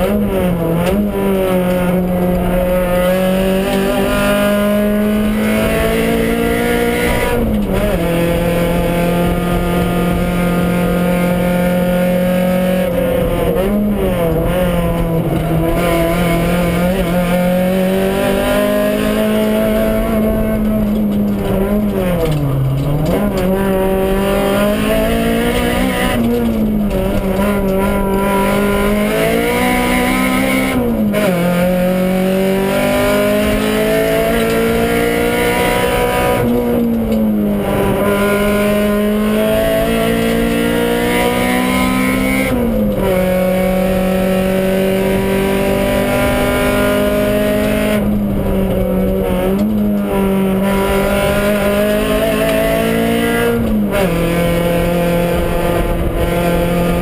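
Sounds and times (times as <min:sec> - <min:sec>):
car engine running hard: 0:00.0 - 0:57.0.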